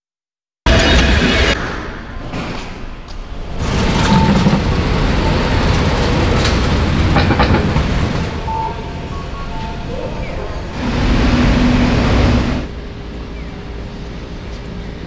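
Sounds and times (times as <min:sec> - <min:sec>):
train rumbling past: 0:03.2 - 0:15.0.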